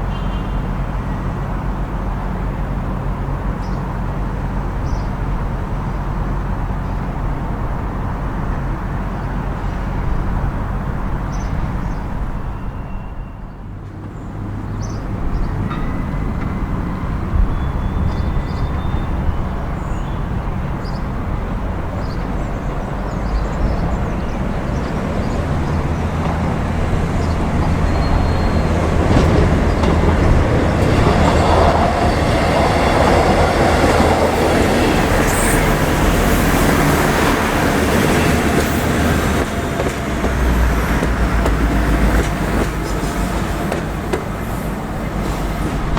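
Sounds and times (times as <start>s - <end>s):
diesel train engine drone: 13.6s - 45.9s.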